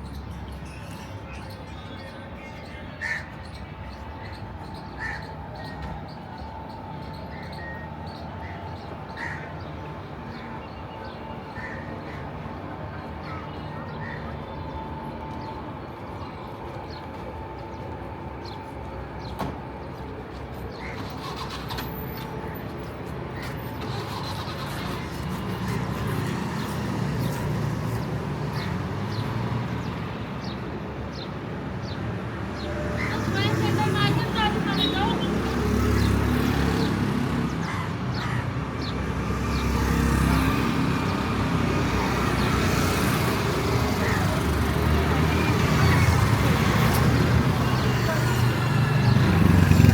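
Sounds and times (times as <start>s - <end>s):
vehicle engines running: 3.5s - 29.8s, 32.6s - 49.9s
approaching vehicle rumble: 20.7s - 28.7s, 44.0s - 49.9s.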